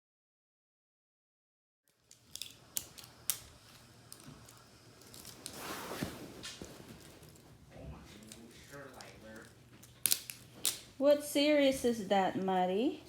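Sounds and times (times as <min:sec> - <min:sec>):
plastic packaging clicks: 0:01.9 - 0:05.6, 0:08.3 - 0:10.9
plastic packaging rustle: 0:01.9 - 0:11.0.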